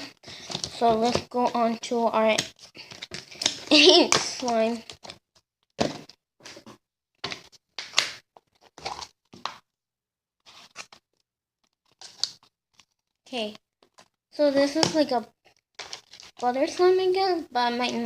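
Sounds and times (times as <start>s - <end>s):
rustling scraping handling noises: 10.4s - 11.0s, 15.7s - 16.5s.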